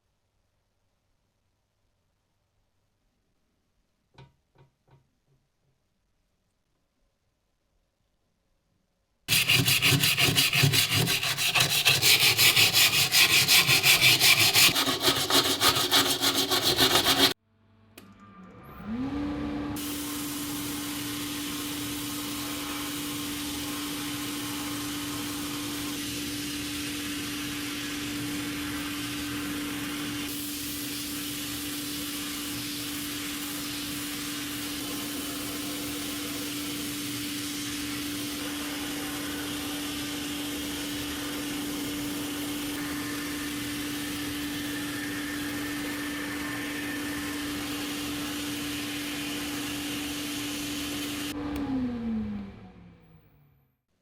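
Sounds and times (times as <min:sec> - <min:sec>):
electric motor humming: 0:09.3 - 0:17.4
rasping hand scraping or sanding: 0:09.3 - 0:17.4.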